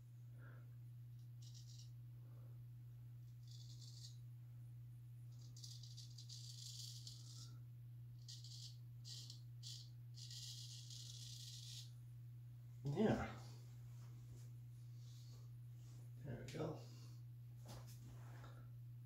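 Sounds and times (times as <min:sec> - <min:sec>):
razor scraping stubble: 0:01.4 - 0:02.0, 0:03.4 - 0:04.2, 0:08.2 - 0:11.9.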